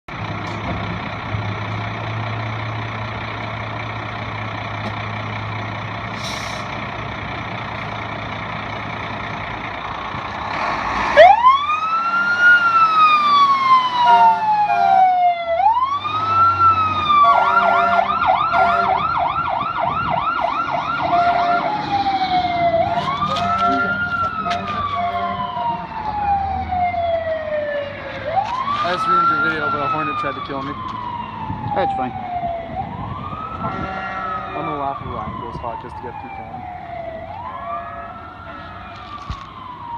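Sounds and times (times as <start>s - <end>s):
fire engine idling: 0.1s - 10.6s
siren wailing and yelping: 11.1s - 39.9s.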